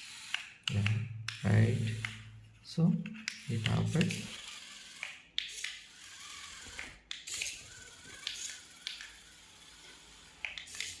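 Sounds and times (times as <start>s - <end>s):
small electric motor hiss: 0.0s - 0.6s, 3.3s - 11.0s
sharp plastic clicks: 0.0s - 2.3s, 3.0s - 9.4s, 10.3s - 11.0s.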